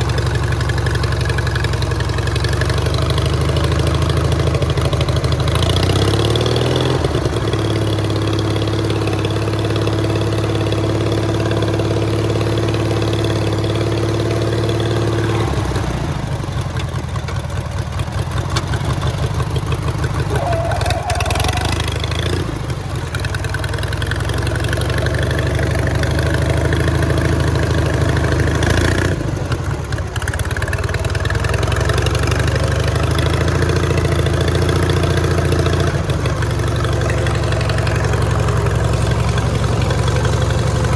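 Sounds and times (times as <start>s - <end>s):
mower engine running: 0.0s - 40.9s.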